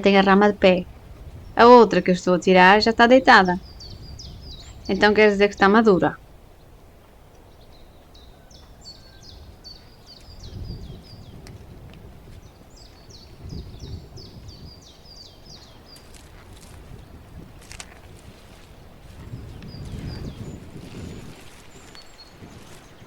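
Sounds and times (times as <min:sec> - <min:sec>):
low outdoor background noise: 0:00.0 - 0:23.0
small songbird singing: 0:00.0 - 0:23.0
low rustles: 0:09.0 - 0:23.0.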